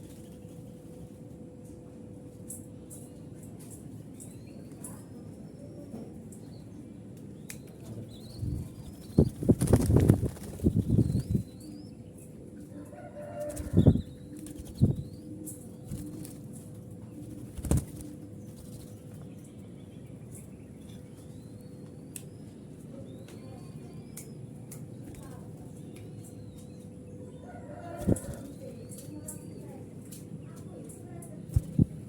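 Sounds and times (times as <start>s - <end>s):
dove wings flapping: 0.0s - 1.1s, 8.4s - 11.5s, 13.4s - 19.2s, 28.0s - 29.1s, 31.4s - 32.0s
faint small bird chirps: 17.6s - 32.0s.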